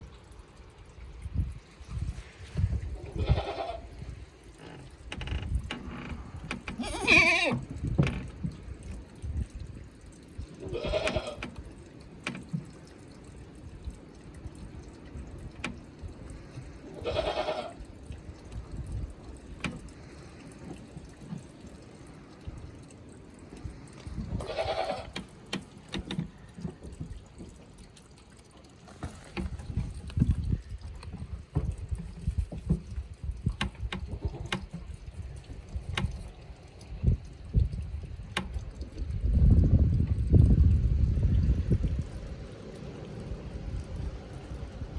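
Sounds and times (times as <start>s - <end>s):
goats bleating: 3.1s - 3.9s, 6.8s - 7.6s, 10.6s - 11.4s, 16.9s - 17.8s, 24.4s - 25.2s.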